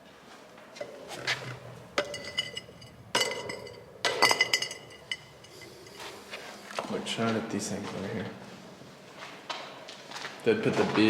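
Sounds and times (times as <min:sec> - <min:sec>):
hard objects clinking: 0:00.8 - 0:06.4.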